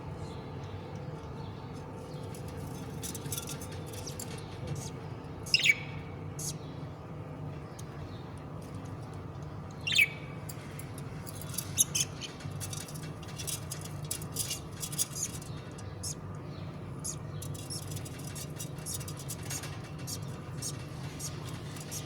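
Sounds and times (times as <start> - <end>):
steady low hum: 0.0 - 22.0
budgerigar chicks squeaking: 5.5 - 6.6, 9.9 - 10.2, 11.5 - 12.8, 15.0 - 16.2.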